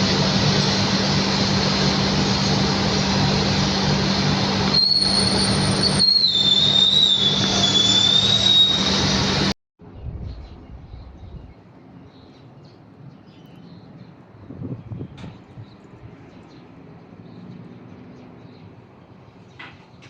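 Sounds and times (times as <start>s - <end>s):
jet engines humming: 0.0s - 9.6s
high jet engine whine: 0.0s - 10.0s
faint outdoor background: 8.9s - 20.0s.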